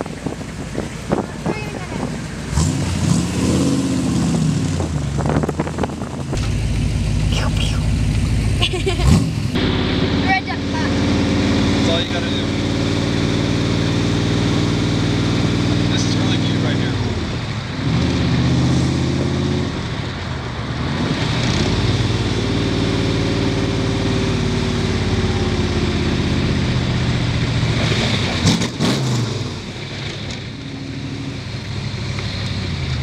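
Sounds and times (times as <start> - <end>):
wind rush: 0.0 - 6.5
car engine accelerating: 0.0 - 33.0.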